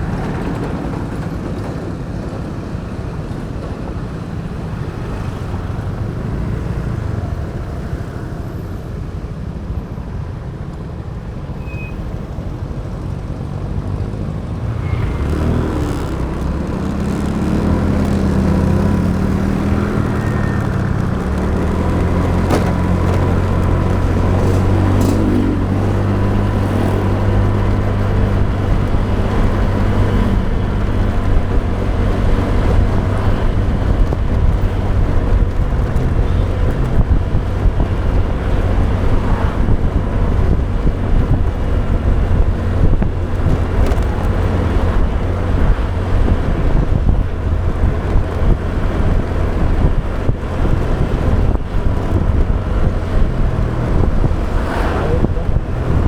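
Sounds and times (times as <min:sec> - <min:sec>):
motorbike engine and road noise: 0:00.0 - 0:56.0
wind: 0:00.0 - 0:56.0
deep engine hum: 0:13.7 - 0:56.0.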